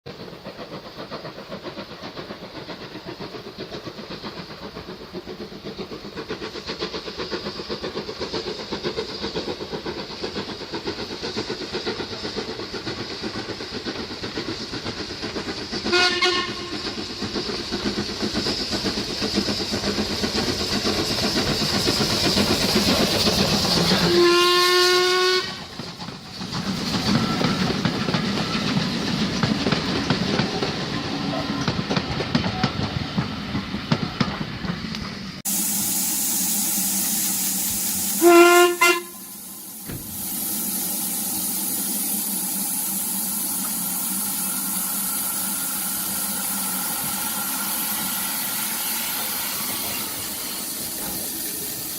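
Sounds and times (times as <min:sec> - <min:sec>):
steam hissing: 0:00.1 - 0:51.9
steam train running: 0:00.1 - 0:51.9
steam whistle blast: 0:15.9 - 0:16.9, 0:24.0 - 0:25.6, 0:35.8 - 0:39.7.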